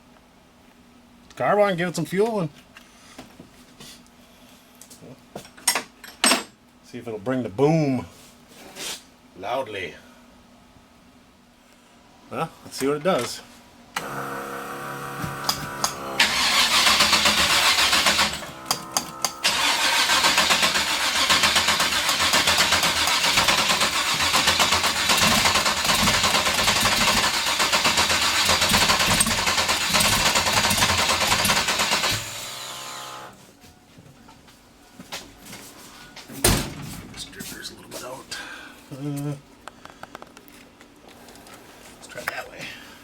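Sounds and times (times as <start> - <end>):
engine starter cranking: 14.0 - 32.7
mechanical engine noise: 14.0 - 33.4.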